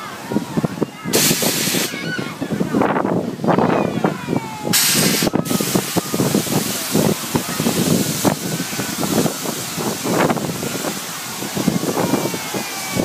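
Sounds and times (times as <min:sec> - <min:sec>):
people's voices: 0:00.0 - 0:13.0
hissing air bursts: 0:01.1 - 0:02.2, 0:04.7 - 0:13.0.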